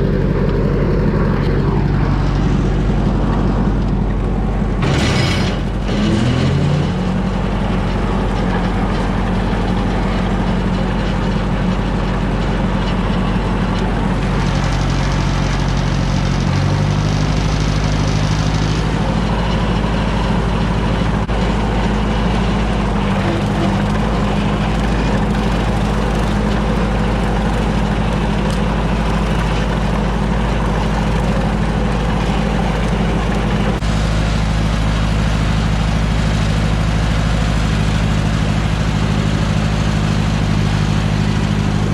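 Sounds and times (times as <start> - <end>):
tractor engine running: 0.0 - 41.9.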